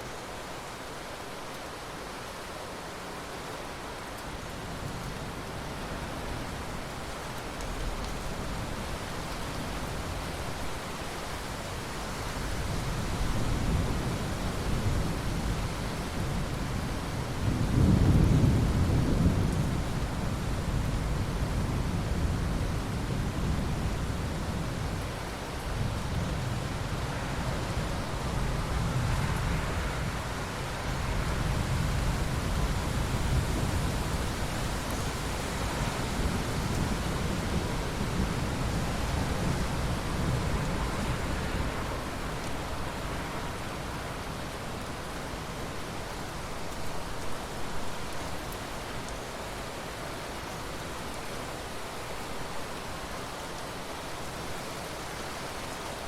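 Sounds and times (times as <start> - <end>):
steady rain: 0.0 - 56.0
low rumble of thunder: 12.6 - 44.0.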